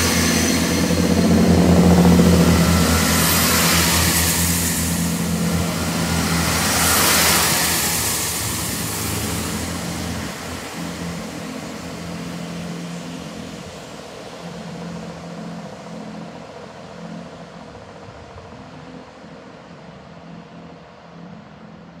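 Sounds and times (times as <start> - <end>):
train wheels rumbling on rails: 0.0 - 13.6
train engine hum: 0.0 - 22.0.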